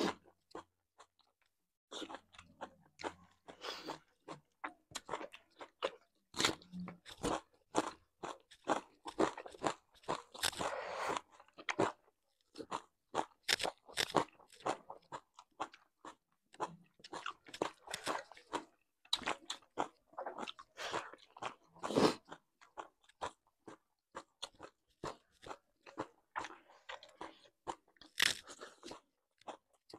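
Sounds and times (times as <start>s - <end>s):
people chewing and biting food: 0.0s - 29.9s.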